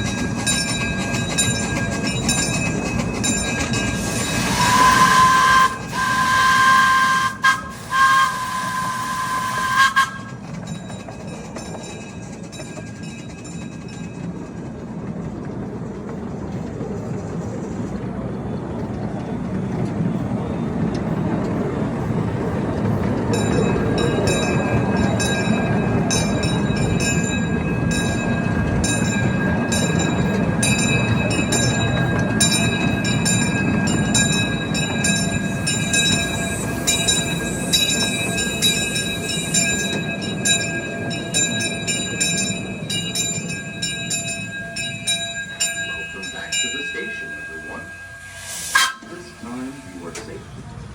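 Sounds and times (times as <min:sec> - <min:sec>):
wheels clicking over rails: 0:00.0 - 0:47.8
miniature train rumbling on track: 0:00.0 - 0:50.9
high-pitched squeal: 0:47.0 - 0:50.6.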